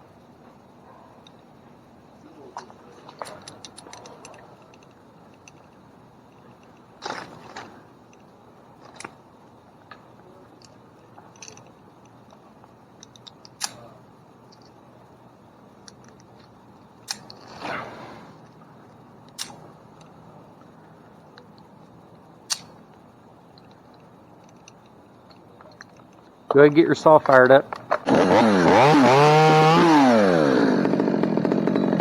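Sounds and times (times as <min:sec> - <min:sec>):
climbing hardware clinking: 0:02.6 - 0:09.2, 0:10.6 - 0:12.4.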